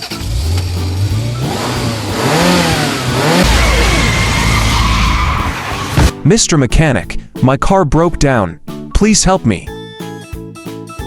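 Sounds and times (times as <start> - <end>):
car engine revving: 0.0 - 6.2.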